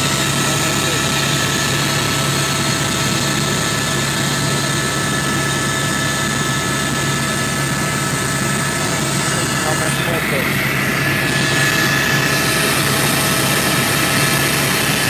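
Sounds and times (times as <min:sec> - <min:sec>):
helicopter cabin drone: 0:00.0 - 0:15.0
high whines: 0:06.2 - 0:15.0.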